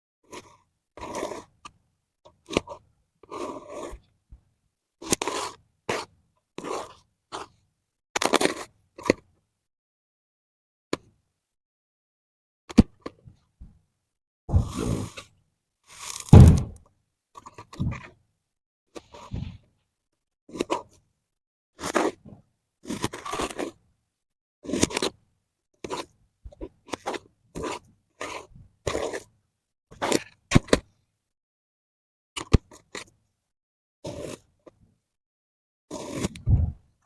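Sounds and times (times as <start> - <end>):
blade scraping through sand: 14.5 - 15.2.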